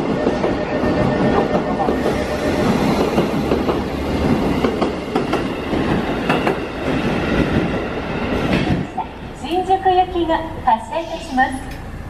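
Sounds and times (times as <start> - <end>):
wheels clacking over rail joints: 0.0 - 9.0
train wheels rumbling: 0.0 - 12.0.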